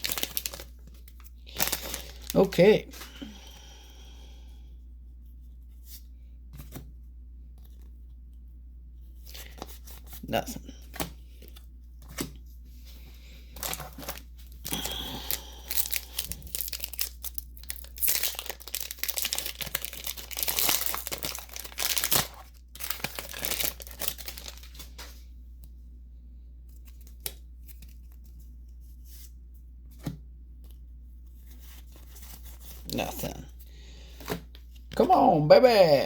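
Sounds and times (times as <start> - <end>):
foil wrappers tearing and crinkling: 0.0 - 3.2, 13.6 - 25.1.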